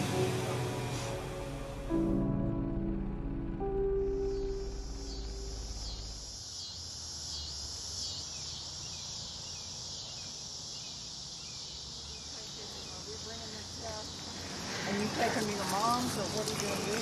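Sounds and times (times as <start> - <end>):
soft background music: 0.0 - 6.2
insects chirping: 4.0 - 17.0.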